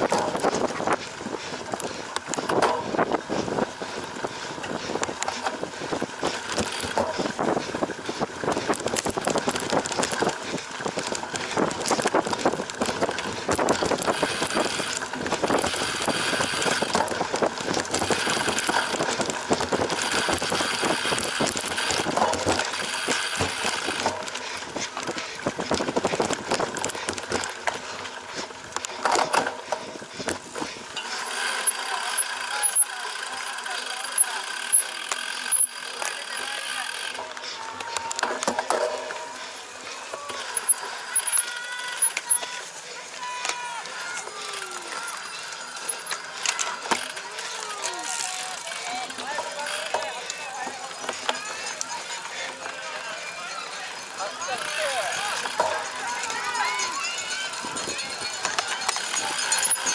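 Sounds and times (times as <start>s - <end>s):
bike rattling over rough ground: 0.0s - 59.9s.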